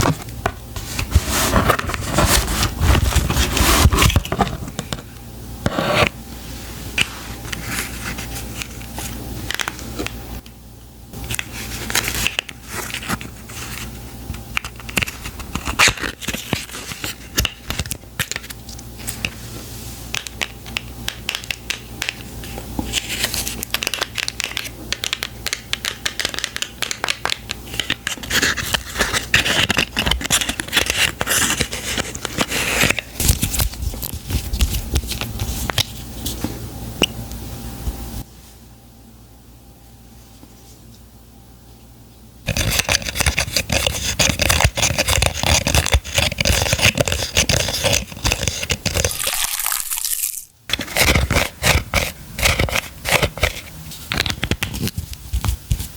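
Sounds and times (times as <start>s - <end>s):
packaging crinkling and tearing: 42.5s - 55.0s.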